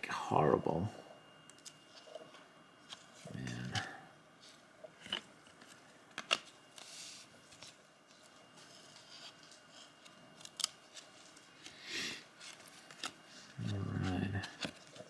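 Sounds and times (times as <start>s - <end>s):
cards peeled apart and flicked: 12.4s - 13.2s.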